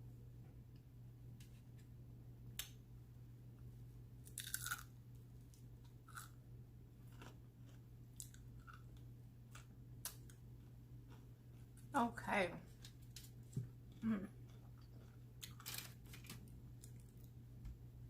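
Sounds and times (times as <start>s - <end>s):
chewing crunchy food: 4.3s - 4.9s, 5.5s - 6.4s, 7.0s - 11.9s, 12.7s - 17.4s.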